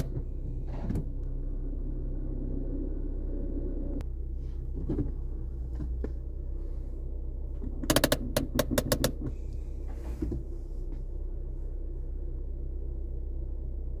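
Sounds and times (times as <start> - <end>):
car engine idling: 0.0 - 14.0
sharp clicks: 7.8 - 9.3.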